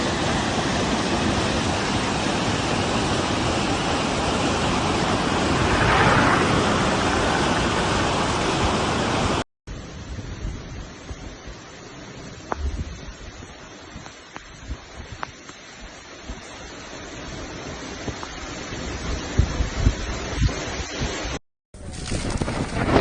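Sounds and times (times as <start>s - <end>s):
loud rush of water: 0.0s - 21.4s
quiet rushing noise: 3.9s - 21.3s.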